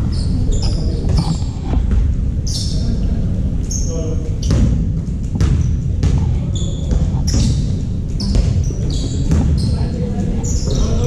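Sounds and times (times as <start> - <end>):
crowd and room rumble: 0.0 - 11.0
sneakers squeaking: 0.0 - 11.0
basketball bouncing: 4.4 - 9.8.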